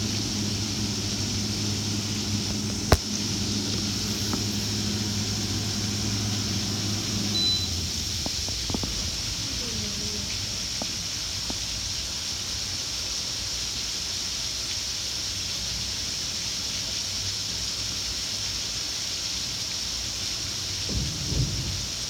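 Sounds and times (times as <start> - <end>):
low rumble: 0.0 - 12.5
heavy rain splashing on deck: 0.0 - 22.0.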